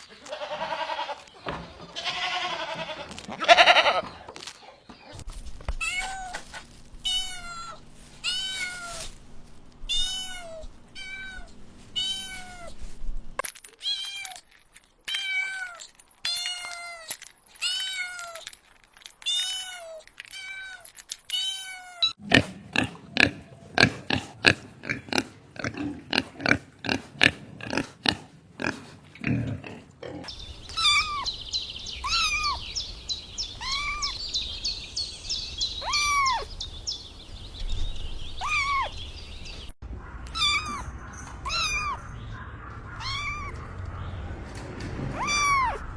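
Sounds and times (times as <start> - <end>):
kittens meowing: 30.7 - 31.4, 32.0 - 32.6, 33.5 - 34.2, 35.8 - 36.5, 38.4 - 39.0, 40.3 - 42.1, 42.8 - 43.7, 45.2 - 45.8.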